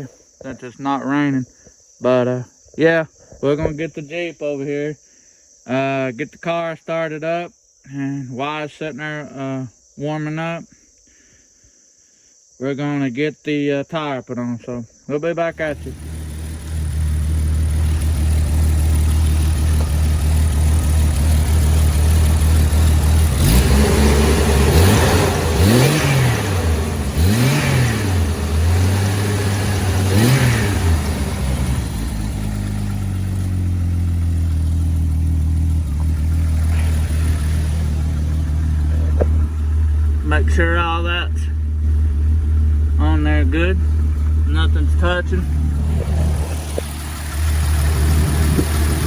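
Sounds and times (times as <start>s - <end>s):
engine idling and revving: 15.5s - 49.0s.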